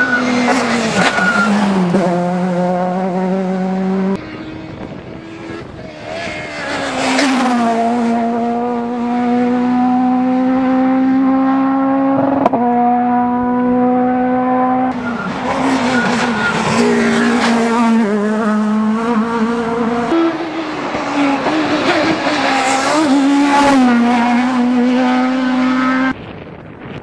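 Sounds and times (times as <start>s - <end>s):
car engine at uneven revs: 0.0s - 26.2s
rally car engine revving high: 0.0s - 26.2s.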